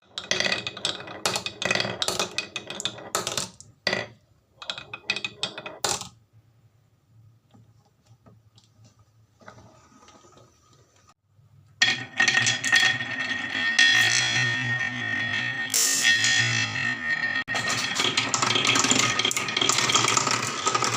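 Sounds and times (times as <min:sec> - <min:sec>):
marbles clattering on wooden run: 0:00.1 - 0:06.1, 0:11.8 - 0:20.9.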